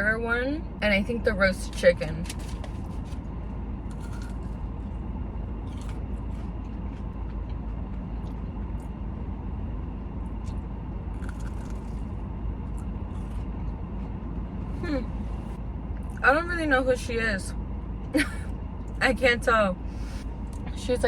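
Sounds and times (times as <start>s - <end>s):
low rumble: 0.0s - 21.0s
faint crunches: 3.9s - 4.7s, 5.6s - 8.9s
chewing food: 3.9s - 9.3s, 10.2s - 14.5s.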